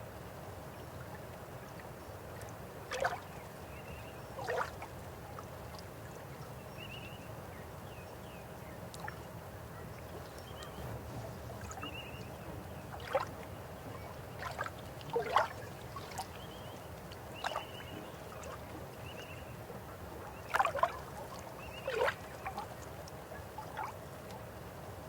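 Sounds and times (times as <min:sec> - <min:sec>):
stream flowing: 0:00.0 - 0:06.6, 0:08.8 - 0:25.0
water plops and gurgles: 0:01.8 - 0:03.4, 0:04.4 - 0:05.9, 0:10.1 - 0:19.3, 0:20.2 - 0:24.4.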